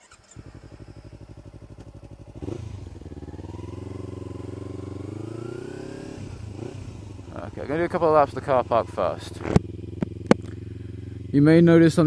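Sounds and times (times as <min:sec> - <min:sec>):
motorcycle engine idling and pulling away: 0:00.0 - 0:12.0.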